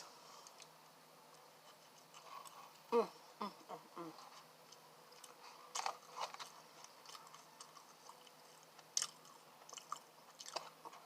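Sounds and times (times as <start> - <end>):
wet mouth chewing sounds: 4.7 - 11.0.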